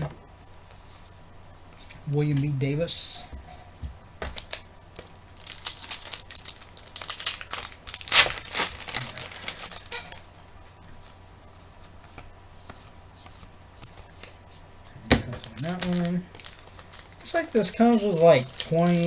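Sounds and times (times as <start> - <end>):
light wrapper rustles: 4.3 - 14.7, 15.4 - 19.0
card pack wrapper tearing: 5.4 - 9.9, 15.4 - 19.0.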